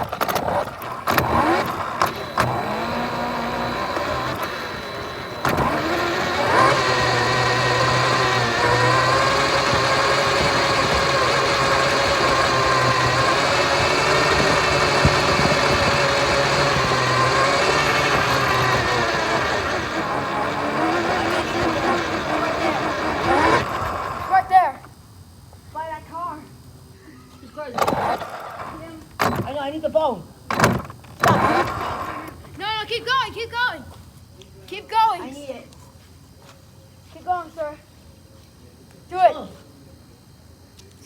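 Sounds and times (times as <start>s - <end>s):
vehicle motor humming: 0.0s - 24.5s, 30.5s - 32.6s.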